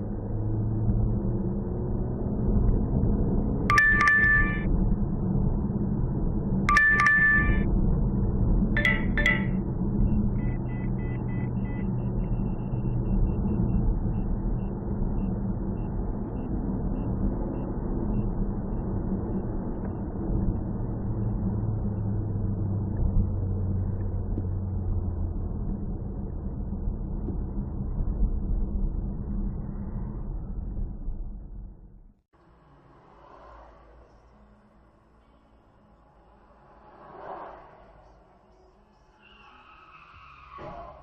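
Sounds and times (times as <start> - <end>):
car engine and road rumble: 0.0 - 41.0
short high beeps: 3.7 - 4.7, 6.7 - 7.7, 8.8 - 9.6.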